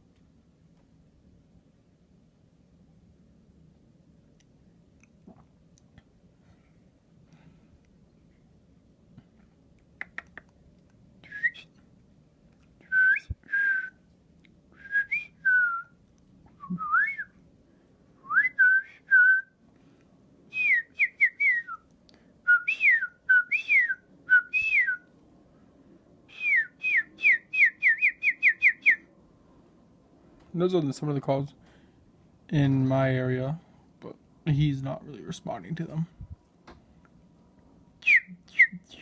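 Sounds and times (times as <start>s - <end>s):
person whistling bird calls: 16.6s - 17.3s, 22.5s - 25.0s, 26.3s - 29.0s, 38.0s - 39.0s.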